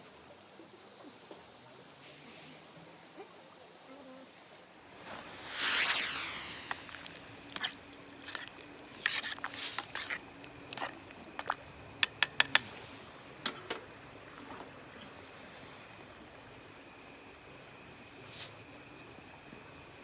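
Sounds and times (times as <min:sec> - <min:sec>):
objects being handled: 0:05.1 - 0:15.2.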